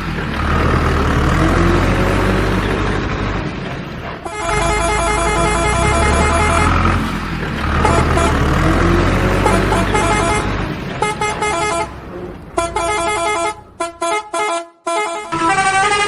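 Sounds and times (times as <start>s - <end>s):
heavy vehicle engine rumbling: 0.0s - 16.0s
vehicle horn honking: 4.3s - 7.0s, 7.8s - 8.6s, 9.4s - 16.0s.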